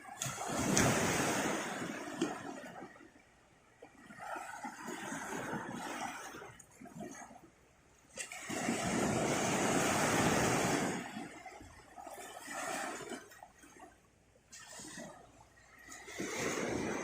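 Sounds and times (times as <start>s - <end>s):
sea wave breaking on beach: 0.0s - 2.6s, 8.2s - 11.7s, 15.8s - 17.0s.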